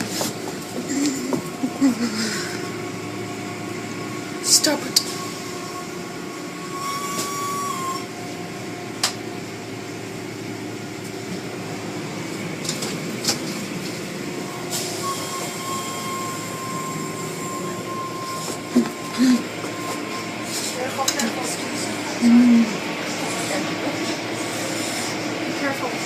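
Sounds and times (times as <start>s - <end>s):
car wash machinery rumbling: 0.0s - 26.0s
thin high whine: 0.8s - 9.0s, 13.6s - 25.8s.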